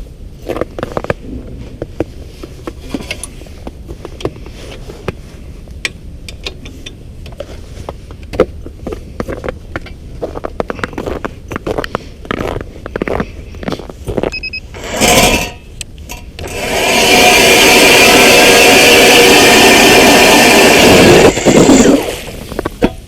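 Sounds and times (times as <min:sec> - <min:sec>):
low rumble: 0:00.0 - 0:06.4, 0:15.6 - 0:22.8
footsteps crunching on ice: 0:07.8 - 0:14.4.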